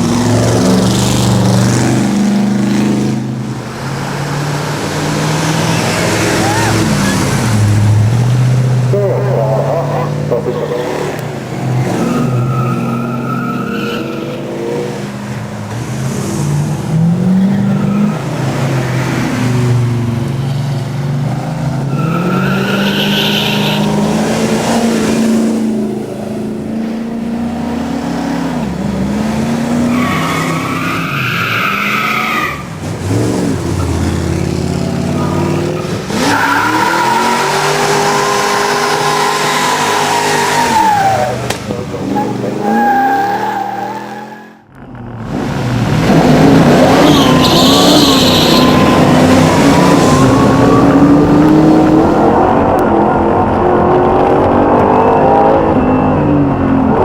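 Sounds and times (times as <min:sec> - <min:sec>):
race car engine revving: 0:00.0 - 0:57.0
tyres squealing: 0:35.0 - 0:44.6, 0:46.8 - 0:52.4.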